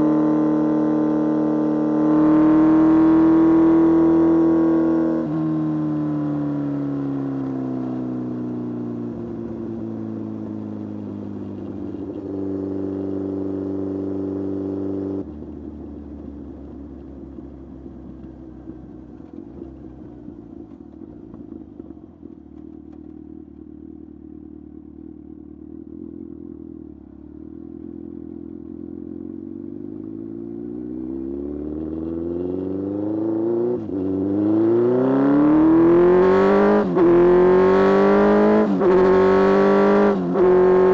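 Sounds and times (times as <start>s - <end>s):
motorcycle engine revving: 0.0s - 7.5s, 28.8s - 40.9s.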